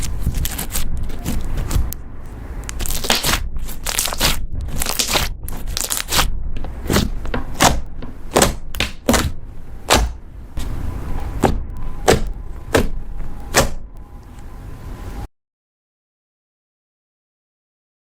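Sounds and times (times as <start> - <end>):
slime squishing: 0.0 - 13.8.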